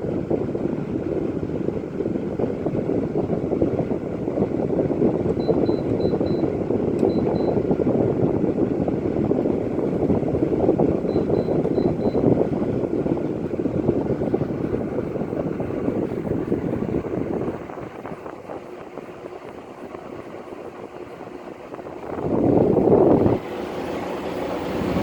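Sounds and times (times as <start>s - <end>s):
air conditioner fan running: 0.0s - 25.0s.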